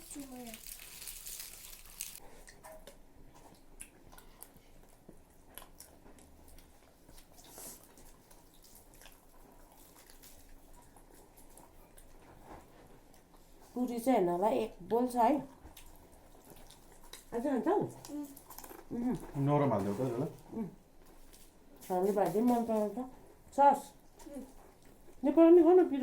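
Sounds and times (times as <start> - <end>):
chewing: 0.1 - 13.8, 15.5 - 19.4.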